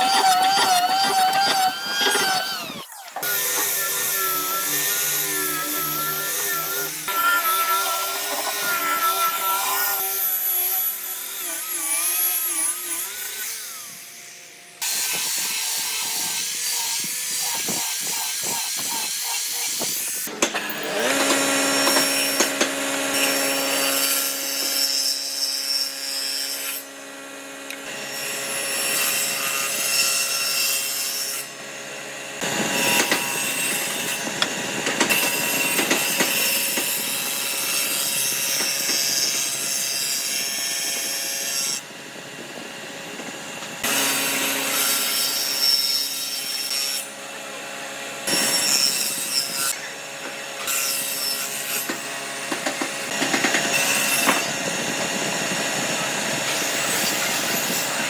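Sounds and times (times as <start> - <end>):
motor whining steadily: 0.0 - 7.2, 19.6 - 24.8, 40.5 - 44.8, 51.5 - 58.0
power tools cutting wood: 0.0 - 58.0.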